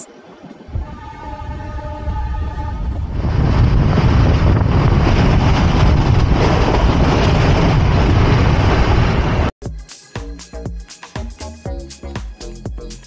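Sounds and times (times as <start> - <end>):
train running rumble: 0.0 - 9.5.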